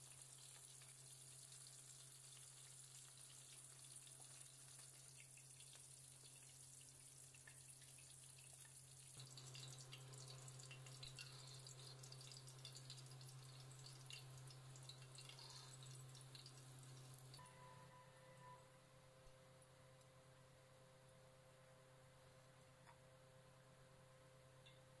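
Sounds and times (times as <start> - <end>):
food sizzling in hot oil: 0.0 - 17.4
steady low hum: 9.0 - 25.0.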